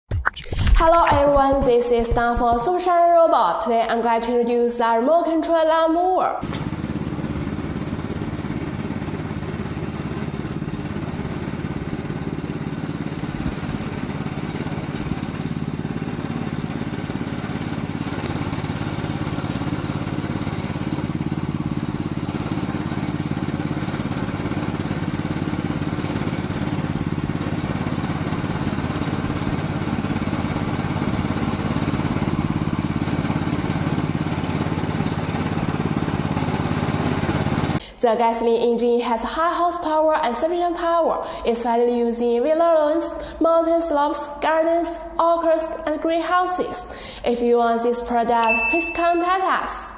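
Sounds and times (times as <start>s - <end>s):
mower engine running: 6.4s - 37.8s.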